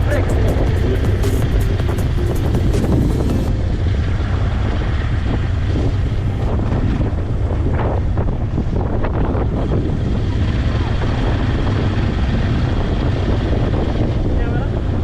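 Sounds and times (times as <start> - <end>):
quad bike engine rumbling: 0.0 - 4.4
wind buffeting microphone: 0.0 - 15.0.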